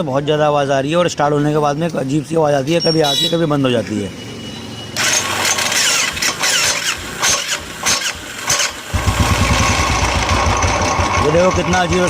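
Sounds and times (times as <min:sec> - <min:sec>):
starter motor grinding: 0:05.0 - 0:12.0
motorcycle engine idling: 0:08.2 - 0:12.0.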